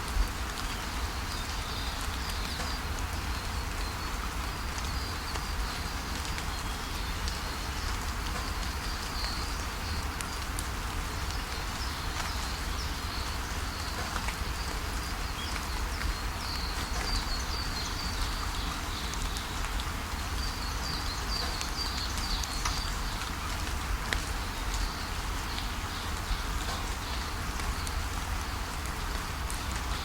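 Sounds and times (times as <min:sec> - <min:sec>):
rain falling: 0:00.0 - 0:30.0.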